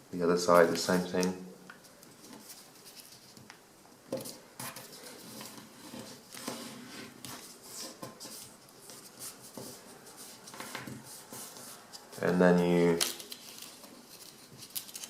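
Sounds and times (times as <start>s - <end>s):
paper rustling and creasing: 4.2s - 15.0s.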